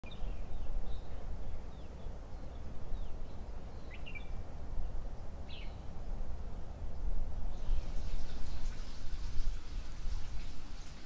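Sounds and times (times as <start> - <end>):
birds chirping: 0.0 - 8.7.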